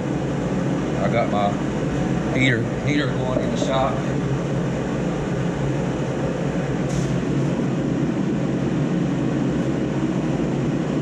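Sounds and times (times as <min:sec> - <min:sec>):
heater running: 0:00.0 - 0:11.0.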